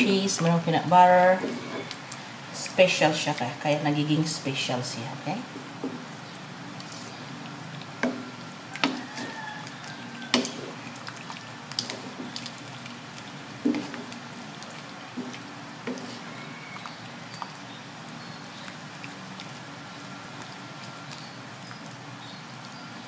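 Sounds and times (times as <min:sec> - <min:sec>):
sauce squelching: 0:06.2 - 0:22.8.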